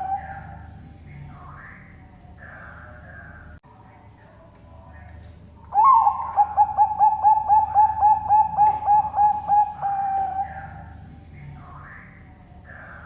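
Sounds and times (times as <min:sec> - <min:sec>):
dove cooing song: 0:00.0 - 0:03.4, 0:05.6 - 0:11.0.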